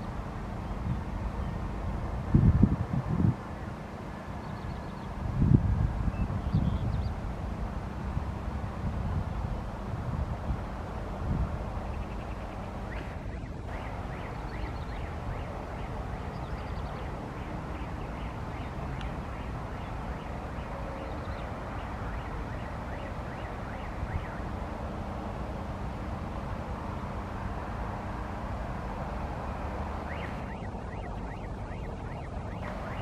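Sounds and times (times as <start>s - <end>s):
jet engines roaring: 10.6s - 33.0s
bird chirps: 11.8s - 24.4s, 30.0s - 33.0s.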